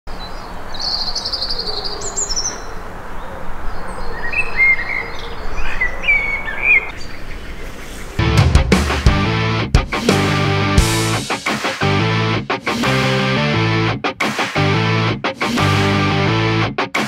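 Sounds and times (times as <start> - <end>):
songbirds trilling and chirping: 0.1 - 8.2
music: 8.2 - 17.0.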